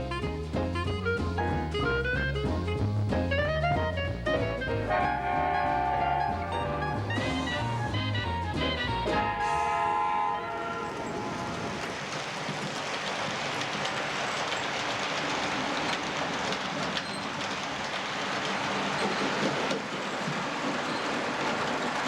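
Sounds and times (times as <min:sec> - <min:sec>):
music: 0:00.0 - 0:10.9
train rumbling on track: 0:00.0 - 0:22.0.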